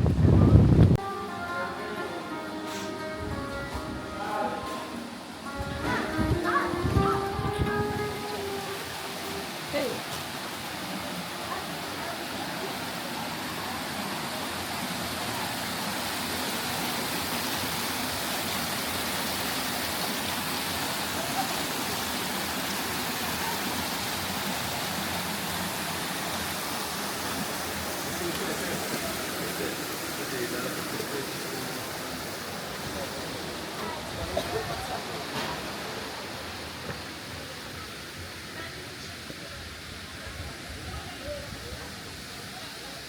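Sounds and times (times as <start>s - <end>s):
running water rushing: 0.0s - 43.0s.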